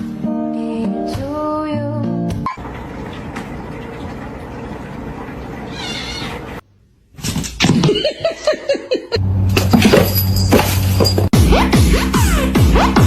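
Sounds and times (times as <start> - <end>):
cat meowing: 5.7 - 6.6.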